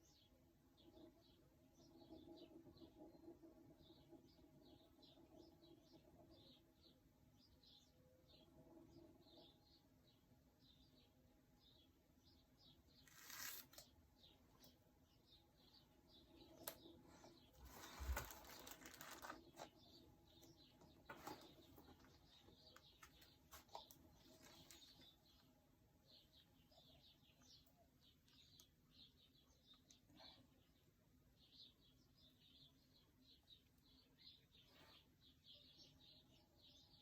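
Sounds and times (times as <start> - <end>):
small bird chirps: 0.0 - 37.0
rustling handling noise: 13.0 - 13.8, 17.6 - 19.7, 20.9 - 25.2.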